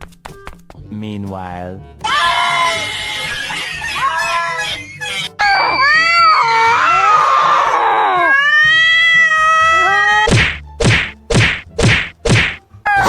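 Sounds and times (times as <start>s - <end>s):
cat yowling: 2.1s - 10.3s.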